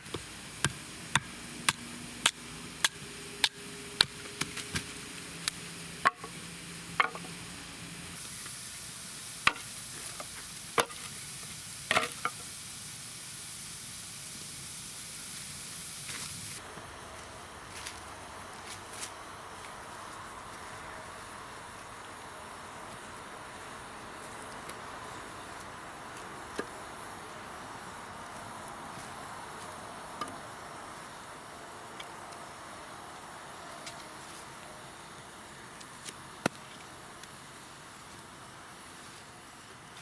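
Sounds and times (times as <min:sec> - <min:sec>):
food sizzling in a pan: 0:00.0 - 0:16.7.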